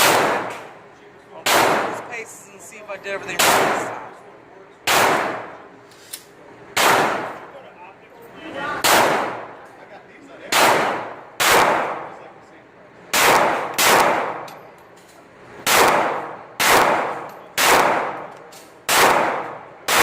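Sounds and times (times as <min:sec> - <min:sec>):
pistol shots echoing: 0:00.0 - 0:00.8, 0:01.4 - 0:02.2, 0:03.4 - 0:04.1, 0:04.8 - 0:05.7, 0:06.7 - 0:07.5, 0:08.8 - 0:09.6, 0:10.5 - 0:12.2, 0:13.1 - 0:14.5, 0:15.6 - 0:20.0.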